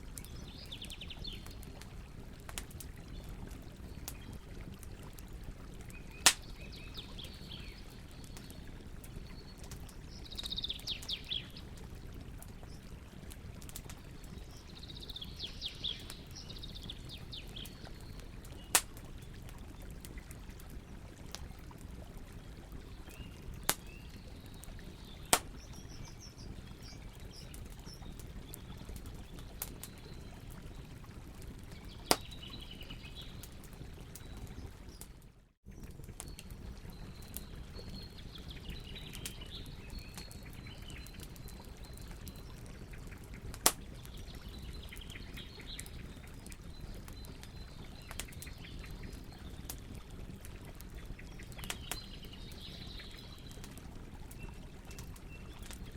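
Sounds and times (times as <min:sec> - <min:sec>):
campfire burning and crackling: 0:00.0 - 0:55.9
birds chirping: 0:09.2 - 0:11.6, 0:14.2 - 0:18.8.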